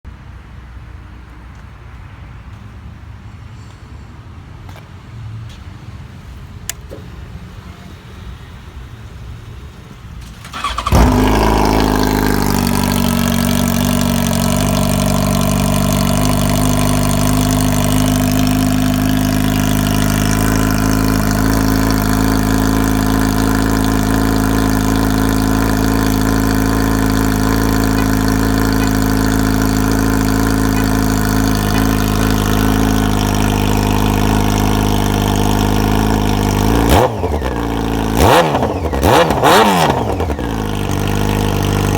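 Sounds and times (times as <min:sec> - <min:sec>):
small click: 0:06.6 - 0:07.1
motorcycle engine starting and idling: 0:06.6 - 0:07.8, 0:09.8 - 0:41.9.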